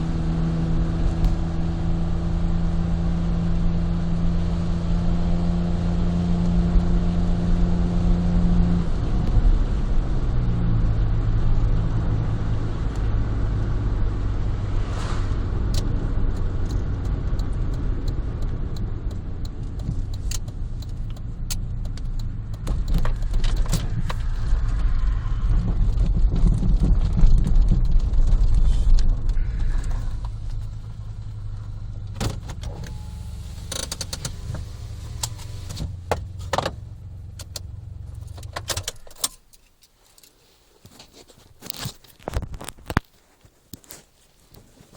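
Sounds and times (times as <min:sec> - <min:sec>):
car engine running: 0:00.0 - 0:39.2
clicks and rattles: 0:15.8 - 0:24.5.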